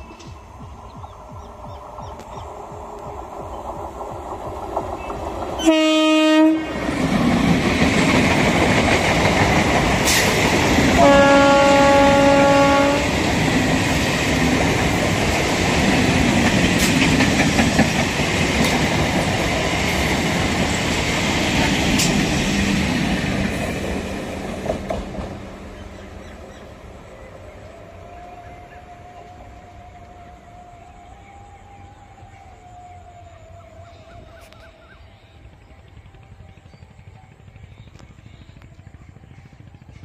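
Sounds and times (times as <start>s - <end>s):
train wheels on rails: 0.0s - 30.8s, 33.9s - 40.0s
train horn blasts: 5.6s - 6.9s, 10.8s - 13.3s.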